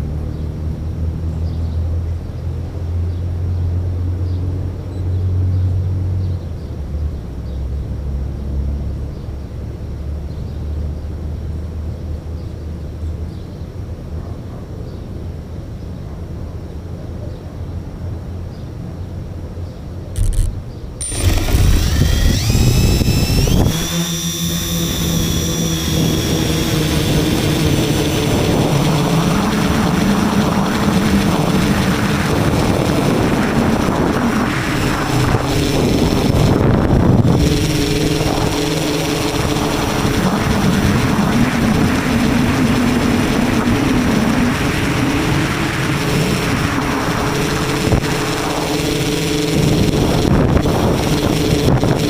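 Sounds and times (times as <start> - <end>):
electric motors whining: 20.2 - 52.0.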